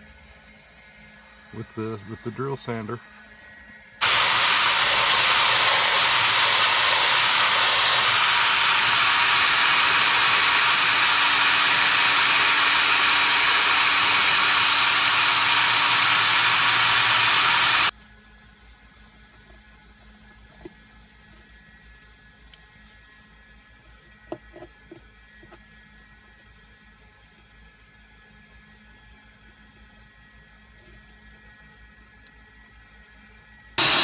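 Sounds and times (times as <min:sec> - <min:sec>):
electric drill sanding: 0:04.0 - 0:17.9, 0:33.8 - 0:34.0.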